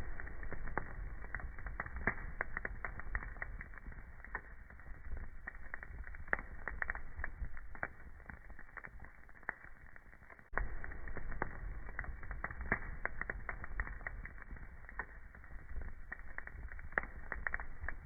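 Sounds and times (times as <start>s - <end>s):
low rumble of flames: 0.0s - 18.0s
sharp pops and snaps: 0.0s - 18.0s
wood fire crackling: 0.0s - 18.0s.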